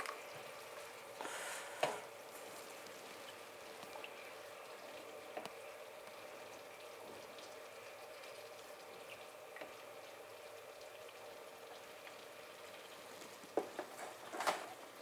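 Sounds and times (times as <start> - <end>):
faint sizzling in a pot: 0.0 - 15.0.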